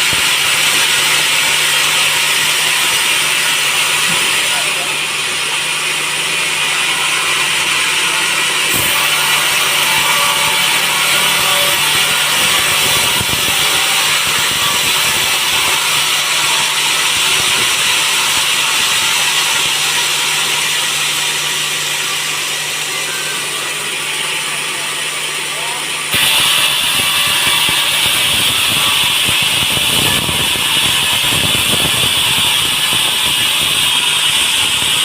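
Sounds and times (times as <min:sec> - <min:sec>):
sawmill machinery running: 0:00.0 - 0:35.0.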